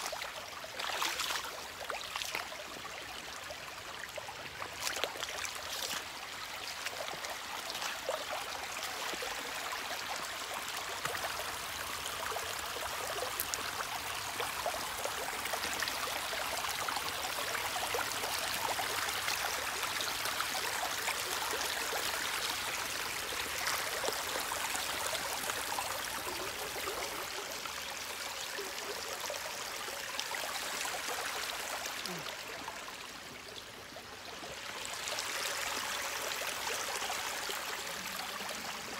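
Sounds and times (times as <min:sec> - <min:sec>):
small splashes and drips: 0:00.0 - 0:02.6, 0:04.6 - 0:09.4
stream running over rocks: 0:00.0 - 0:38.9.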